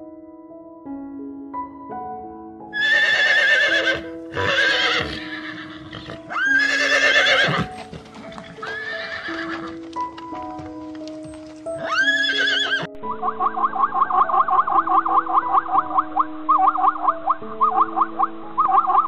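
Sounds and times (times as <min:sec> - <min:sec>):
soft piano music: 0:00.0 - 0:19.0
horse whinnying: 0:02.8 - 0:09.8, 0:11.7 - 0:12.9.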